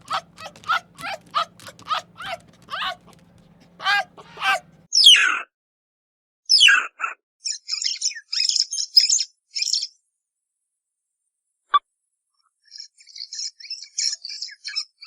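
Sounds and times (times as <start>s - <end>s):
bird calls falling in pitch: 0.0s - 4.8s.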